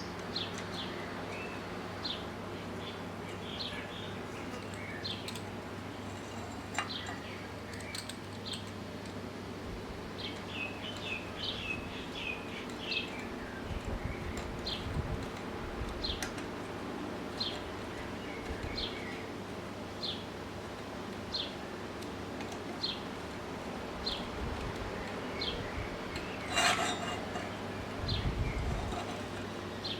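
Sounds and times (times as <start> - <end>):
birds chirping: 0.0 - 8.8, 24.9 - 29.9
steady low hum: 0.0 - 29.9.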